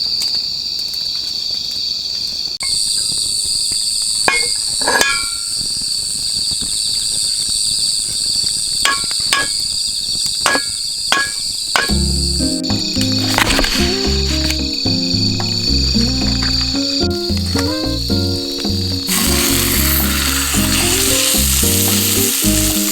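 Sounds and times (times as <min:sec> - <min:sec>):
insects shrilling: 0:02.5 - 0:22.9
hammer striking metal stakes: 0:04.3 - 0:05.5, 0:08.8 - 0:09.7, 0:10.4 - 0:12.3
music: 0:11.9 - 0:22.9.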